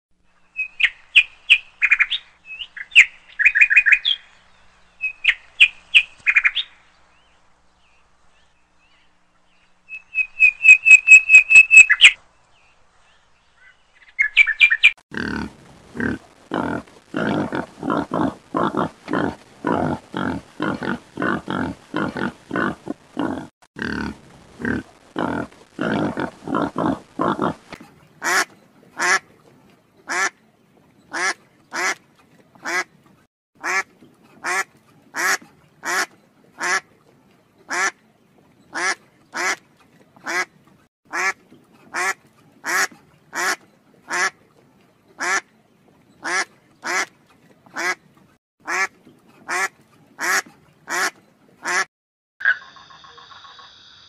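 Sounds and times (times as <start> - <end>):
pig grunting: 15.1 - 27.7
ducks quacking: 15.2 - 29.4, 30.0 - 30.4, 31.1 - 33.0, 33.6 - 37.0, 37.7 - 38.0, 38.7 - 44.4, 45.2 - 45.5, 46.2 - 48.0, 48.6 - 52.8.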